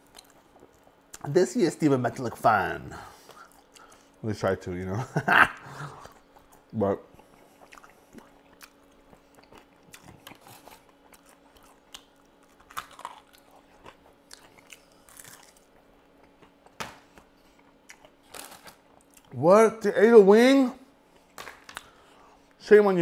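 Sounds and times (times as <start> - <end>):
chewing crunches: 0.0 - 1.3, 6.0 - 19.4.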